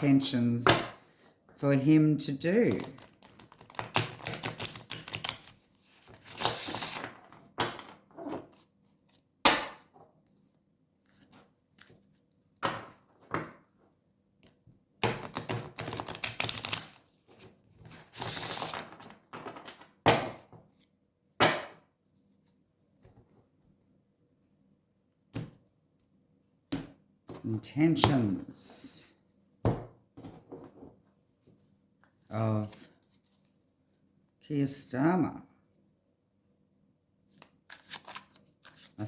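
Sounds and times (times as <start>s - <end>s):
cards being shuffled: 2.7s - 8.7s, 14.4s - 19.6s, 37.3s - 39.0s.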